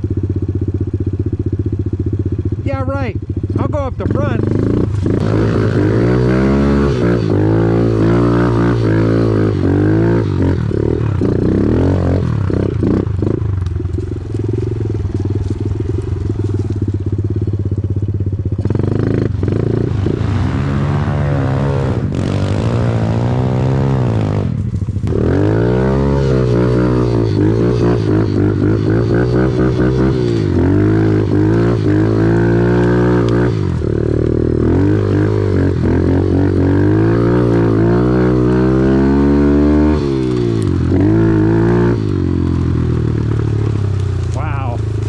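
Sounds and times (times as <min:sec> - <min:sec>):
off-road vehicle engine revving: 0:01.9 - 0:45.0.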